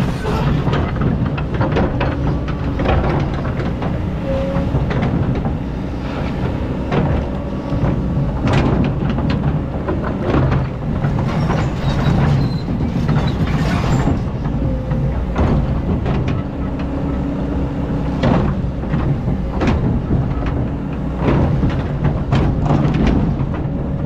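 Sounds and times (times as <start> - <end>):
bucket clanking and scraping: 0.0 - 16.4
excavator diesel engine running: 0.0 - 24.0.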